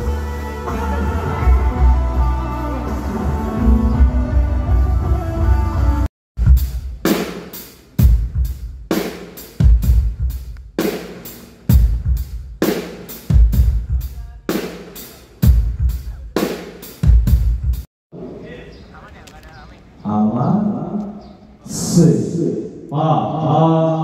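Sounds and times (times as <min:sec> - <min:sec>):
band music: 0:00.0 - 0:17.8
drum kit beat: 0:06.0 - 0:17.9.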